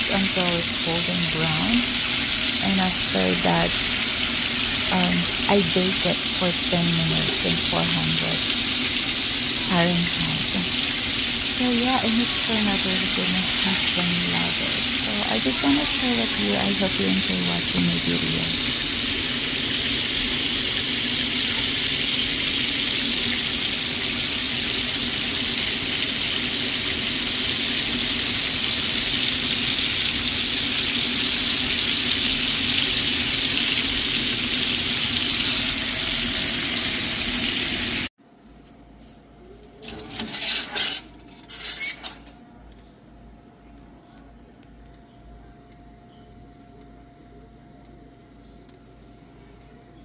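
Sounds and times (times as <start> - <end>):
meat sizzling in a frying pan: 0.0 - 38.1.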